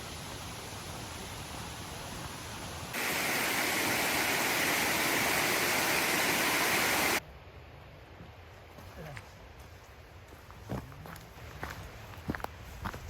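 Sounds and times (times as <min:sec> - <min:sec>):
rushing mountain stream: 0:00.0 - 0:07.2.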